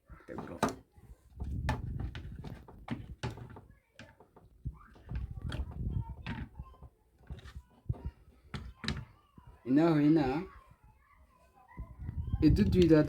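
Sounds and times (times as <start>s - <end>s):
faint voices: 3.4s - 13.0s.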